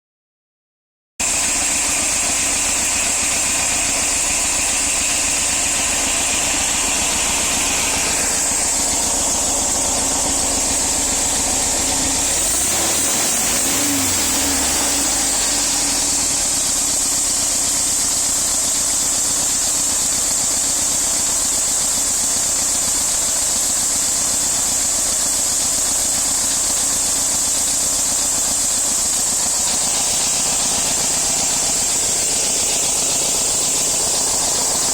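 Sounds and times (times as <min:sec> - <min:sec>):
van engine and exhaust running: 0:01.2 - 0:34.9
steady hiss: 0:01.4 - 0:18.9.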